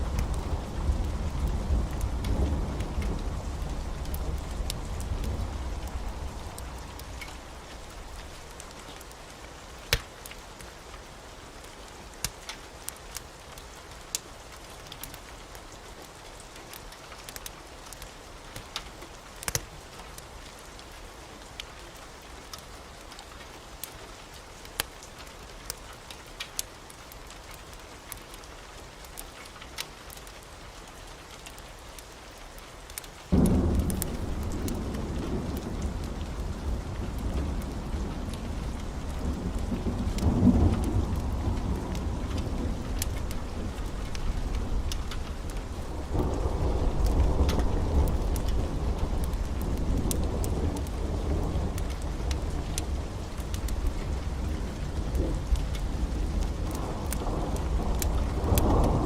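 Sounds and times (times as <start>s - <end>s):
low rumble of thunder: 0.0s - 8.7s, 33.3s - 59.0s
steady rain: 0.0s - 59.0s
sharp pops and ticks: 17.2s - 19.7s, 32.9s - 36.4s, 39.5s - 45.8s.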